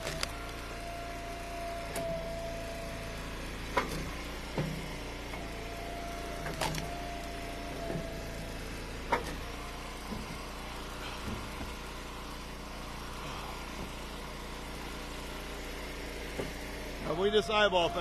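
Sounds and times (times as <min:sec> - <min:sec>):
hydraulic wood splitter engine running: 0:00.0 - 0:18.0
wooden knocks of split firewood: 0:06.4 - 0:08.2, 0:09.1 - 0:10.5, 0:11.2 - 0:11.8, 0:16.3 - 0:16.6
thin whine: 0:16.4 - 0:18.0.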